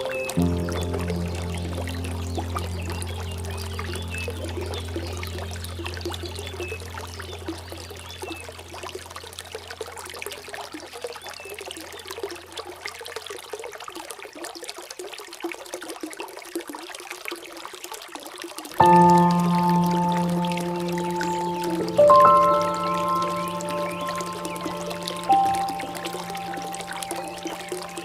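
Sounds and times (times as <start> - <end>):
low hum: 0.0 - 8.8
stream trickling and splashing: 0.0 - 28.0.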